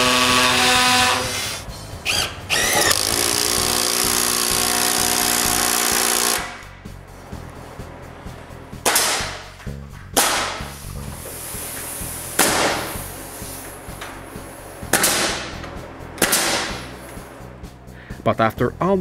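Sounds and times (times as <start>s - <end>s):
background music: 0.0s - 19.0s
hammer nailing wood: 8.8s - 9.4s, 14.9s - 15.6s, 16.2s - 16.9s.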